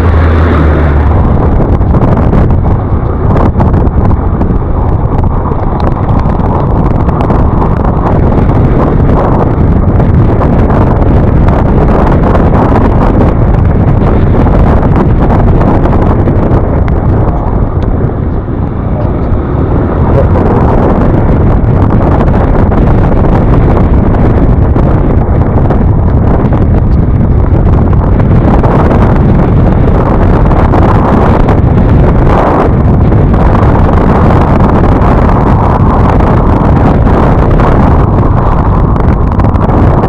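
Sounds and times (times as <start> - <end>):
road noise: 0.0 - 40.0
wind rushing over microphone: 0.0 - 40.0.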